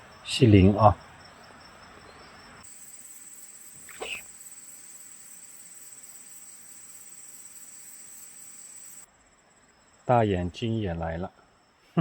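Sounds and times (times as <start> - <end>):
insect trilling: 2.0 - 10.2.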